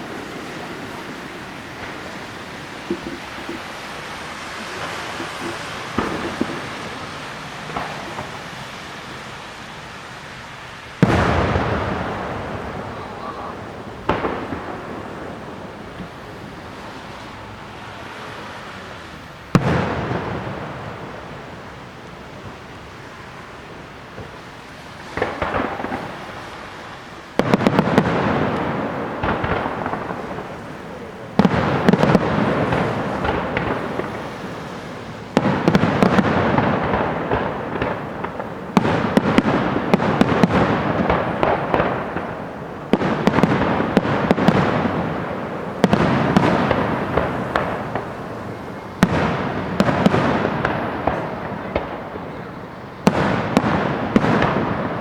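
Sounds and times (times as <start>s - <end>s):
fireworks bursting with bangs: 0.0s - 55.0s
fireworks crackling: 0.0s - 55.0s.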